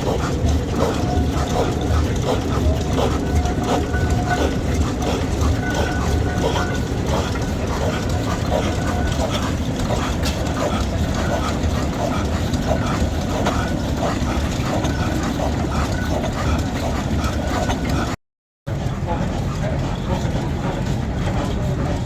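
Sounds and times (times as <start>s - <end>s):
heavy engine rumbling: 0.0s - 22.0s
faint voices: 18.7s - 22.0s.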